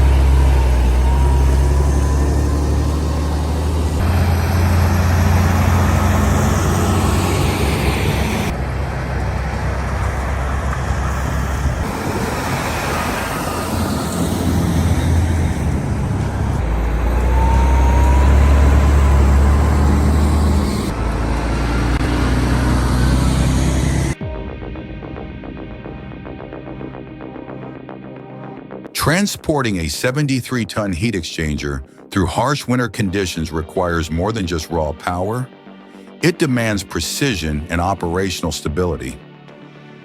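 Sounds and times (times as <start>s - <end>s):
diesel truck engine under load: 0.0s - 24.2s.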